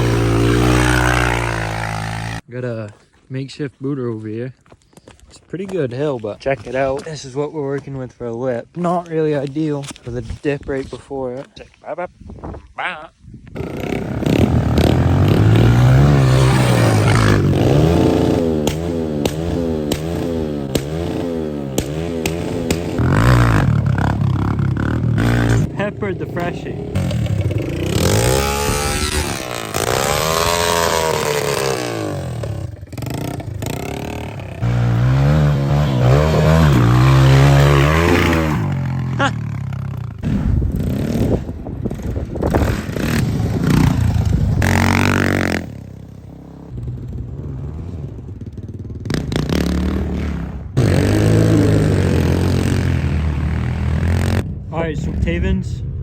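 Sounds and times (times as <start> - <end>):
pit bike engines revving: 0.0 - 2.5, 13.6 - 55.5.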